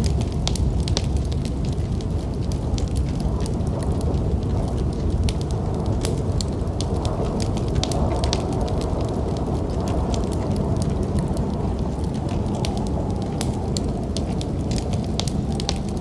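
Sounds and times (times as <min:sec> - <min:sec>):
snowstorm wind rumbling: 0:00.0 - 0:16.0
wood fire crackling: 0:00.0 - 0:16.0.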